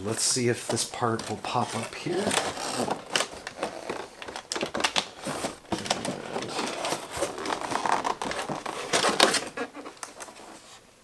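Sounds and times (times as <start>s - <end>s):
box packaging crinkling: 0.0s - 10.8s.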